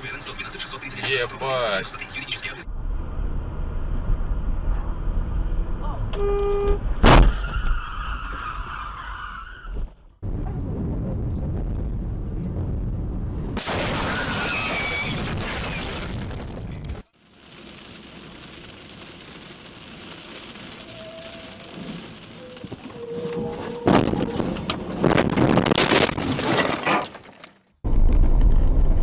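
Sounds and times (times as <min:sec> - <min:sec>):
car and road noise: 0:00.0 - 0:11.2, 0:16.2 - 0:25.8.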